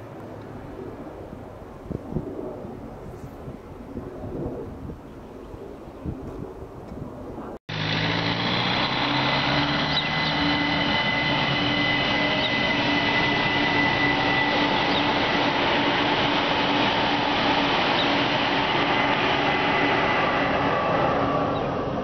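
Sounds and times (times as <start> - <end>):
electric drive whining: 7.7 - 16.3
train wheels rumbling on rails: 7.7 - 21.8.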